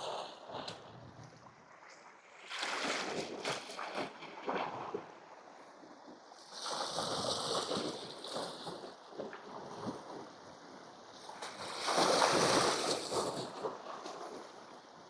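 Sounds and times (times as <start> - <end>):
waves washing against rocks: 11.2 - 14.9.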